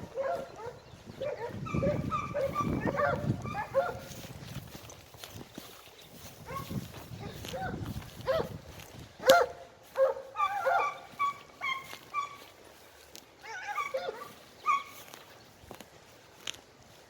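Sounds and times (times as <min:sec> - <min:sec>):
hounds baying: 0:00.0 - 0:04.2, 0:06.4 - 0:08.6, 0:09.2 - 0:12.7, 0:13.4 - 0:15.2.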